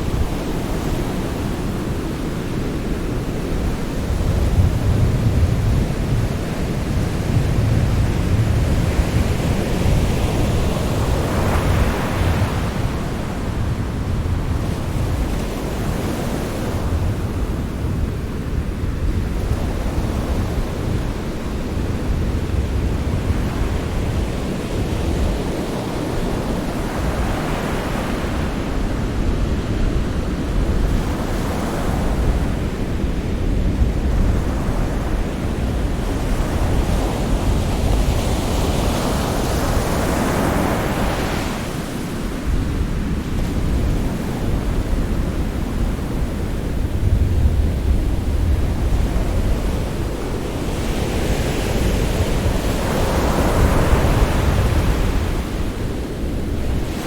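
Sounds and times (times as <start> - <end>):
sea waves breaking ashore: 23.3 - 57.0.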